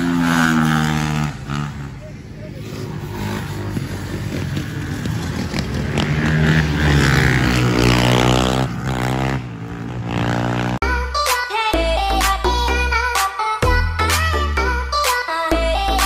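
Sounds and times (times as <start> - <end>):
motorbike engines revving: 0.0 - 10.9
music: 10.8 - 16.0.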